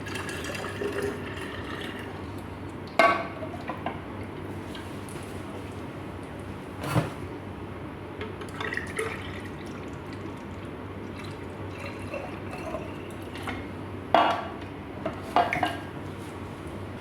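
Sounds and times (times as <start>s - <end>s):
liquid pouring into a glass: 0.0s - 2.2s, 8.5s - 13.6s.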